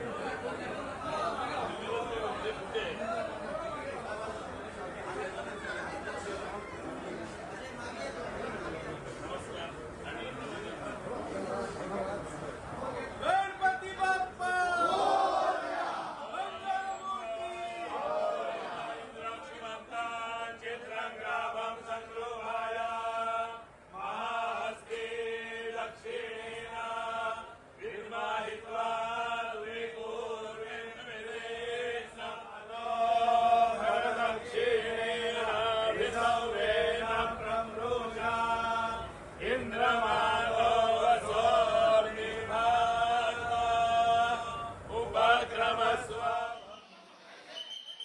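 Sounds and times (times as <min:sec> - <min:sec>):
voices chanting in unison: 0:17.8 - 0:47.6.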